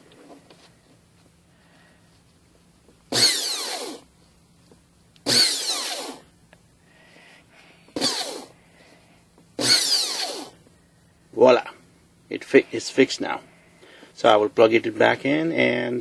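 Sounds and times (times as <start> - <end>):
hand blender motor whine: 3.1 - 4.1, 5.3 - 6.2, 8.0 - 8.5, 9.6 - 10.6.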